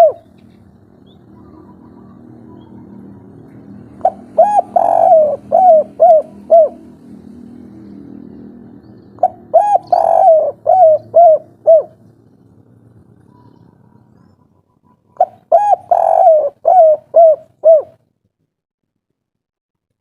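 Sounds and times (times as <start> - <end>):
dove cooing: 0.0 - 7.0, 9.2 - 12.1, 13.2 - 18.0
low hum: 0.0 - 14.8.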